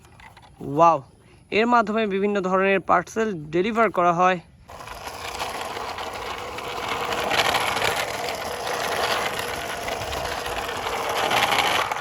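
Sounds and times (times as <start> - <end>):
toy wheels rattling whir: 4.6 - 12.0.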